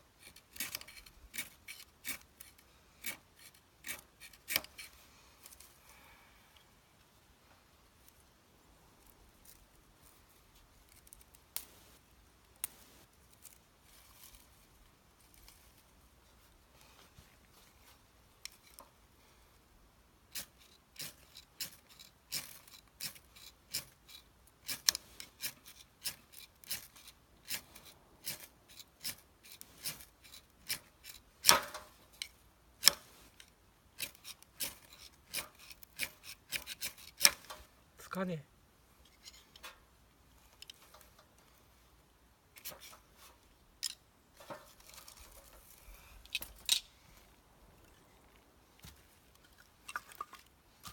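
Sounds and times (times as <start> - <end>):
ferro rod scraping: 20.3 - 37.7, 42.6 - 47.3.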